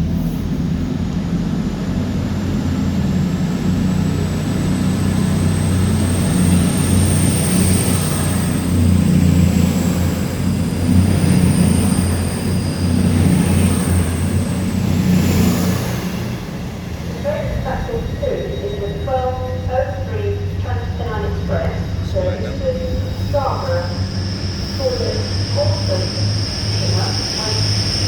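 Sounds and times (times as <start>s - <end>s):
low engine hum: 0.0s - 28.0s
thin high whine: 5.9s - 28.0s.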